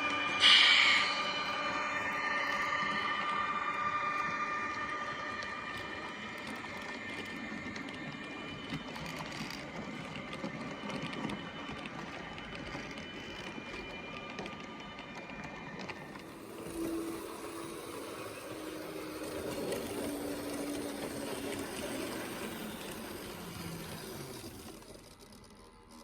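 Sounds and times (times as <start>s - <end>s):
wheels rattling over rails: 0.0s - 26.0s
model train motor whirring: 16.1s - 26.0s.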